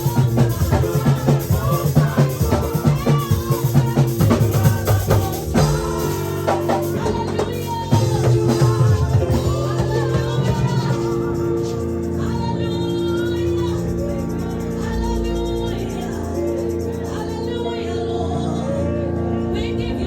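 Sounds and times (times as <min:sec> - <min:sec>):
drum kit playing: 0:00.0 - 0:12.1
people singing: 0:00.0 - 0:20.0.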